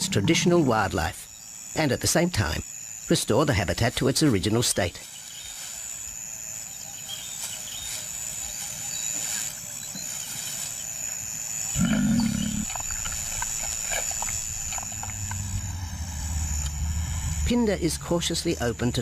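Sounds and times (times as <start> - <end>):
high insect drone: 0.0 - 19.0
lion grunting: 11.7 - 12.9.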